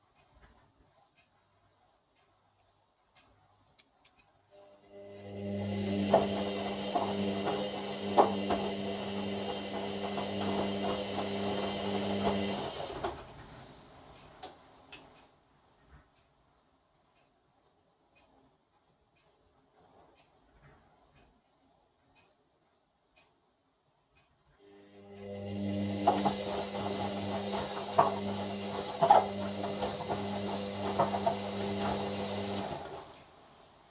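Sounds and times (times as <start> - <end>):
washer drum motor hum: 4.8 - 14.4, 24.6 - 33.9.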